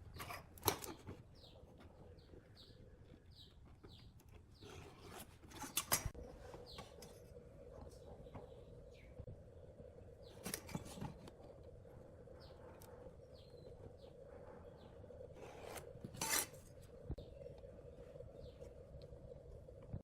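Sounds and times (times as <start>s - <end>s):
steady low hum: 6.1s - 20.0s.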